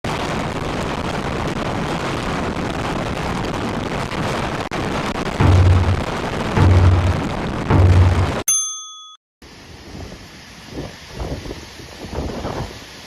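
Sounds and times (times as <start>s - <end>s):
wind and rain roaring: 0.0s - 8.4s, 9.4s - 13.0s
wind gusts buffeting microphone: 9.7s - 13.0s.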